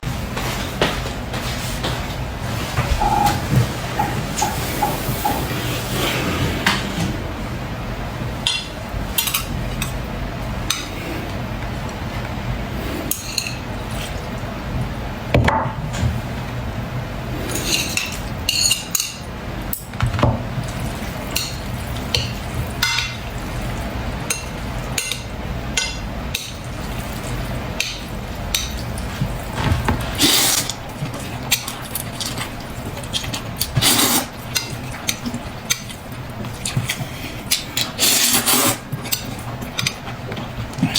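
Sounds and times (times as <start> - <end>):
steady low hum: 0.0 - 40.9
dishes and cutlery clinking: 2.7 - 5.6, 17.5 - 20.4, 21.3 - 23.3, 24.2 - 40.9.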